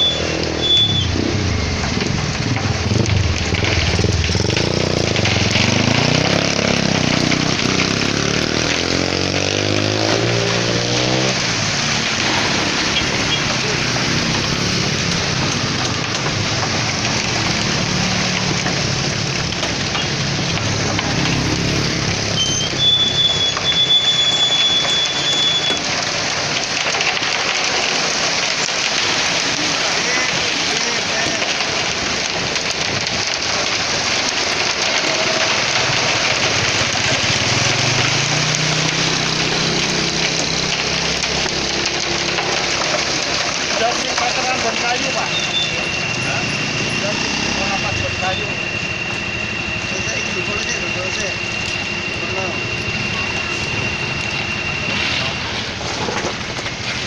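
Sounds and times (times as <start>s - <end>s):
mixer truck engine running: 0.0s - 57.0s
wet concrete churning: 0.0s - 57.0s.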